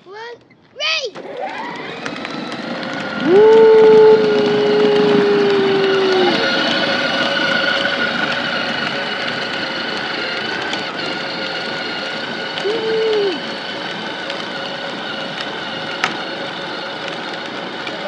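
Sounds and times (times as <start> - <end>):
atv engine whine: 1.1 - 18.0.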